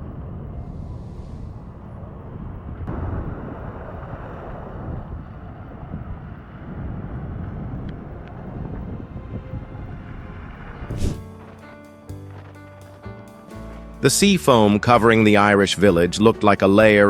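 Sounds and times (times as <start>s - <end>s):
wind buffeting microphone: 0.0s - 11.5s.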